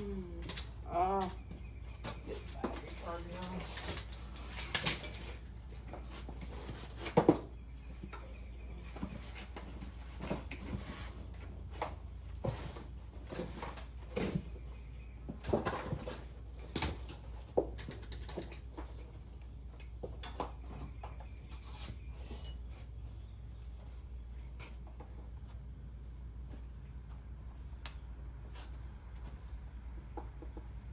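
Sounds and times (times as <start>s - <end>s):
tools and parts clanking: 0.2s - 8.3s, 8.9s - 19.3s, 20.0s - 23.1s.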